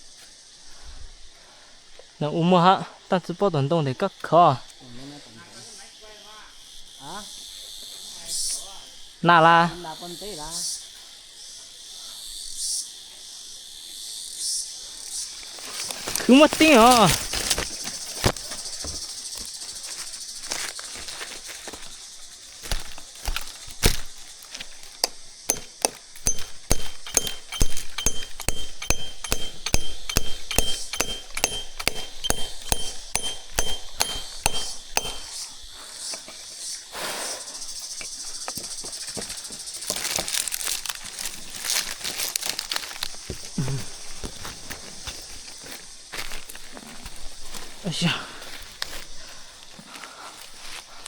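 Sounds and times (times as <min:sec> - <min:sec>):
rustling: 0:19.9 - 0:35.4
sharp clicks and knocks: 0:24.9 - 0:35.3.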